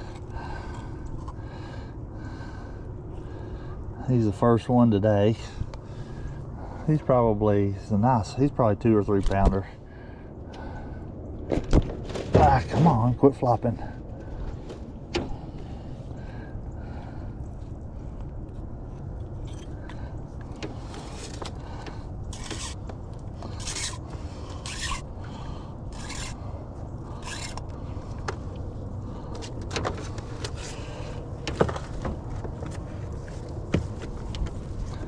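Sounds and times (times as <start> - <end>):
steady low rumble: 0.0 - 35.0
short scrapes: 22.3 - 22.8, 23.4 - 25.1, 25.9 - 26.4.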